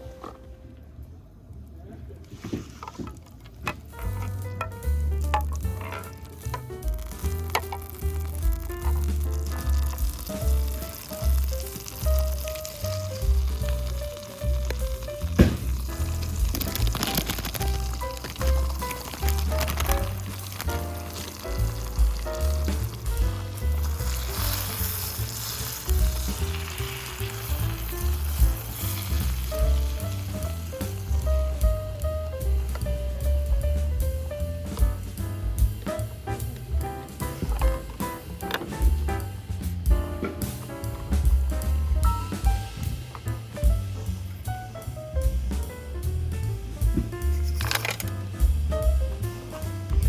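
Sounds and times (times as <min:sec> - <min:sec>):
background music with bass: 0:03.9 - 0:50.0
food sizzling in a pan: 0:23.7 - 0:29.5.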